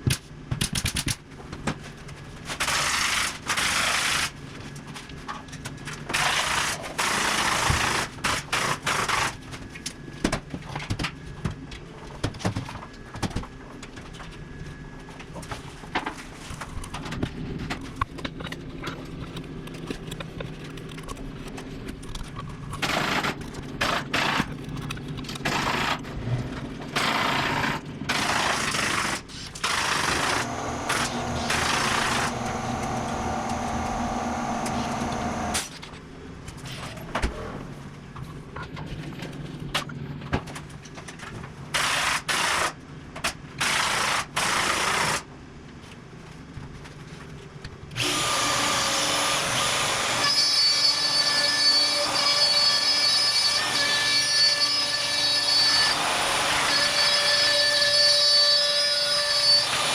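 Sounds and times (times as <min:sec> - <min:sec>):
pneumatic nail gun firing: 0:02.6 - 0:04.3, 0:06.1 - 0:09.4, 0:22.8 - 0:24.5, 0:25.4 - 0:26.0, 0:27.0 - 0:35.7, 0:41.7 - 0:45.3
power tool running: 0:22.8 - 0:24.5, 0:25.3 - 0:35.7, 0:48.0 - 0:59.9.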